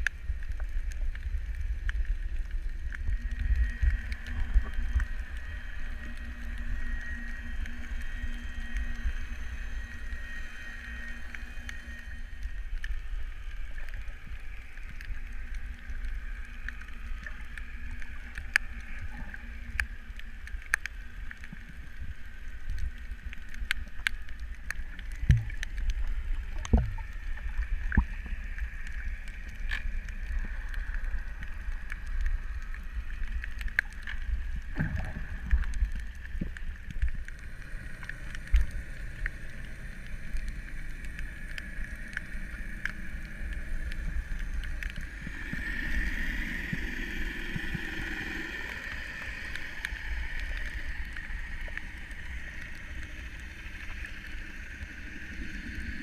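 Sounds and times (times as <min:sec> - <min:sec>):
underwater rumble: 0:00.0 - 0:56.0
water bubbling: 0:00.0 - 0:56.0.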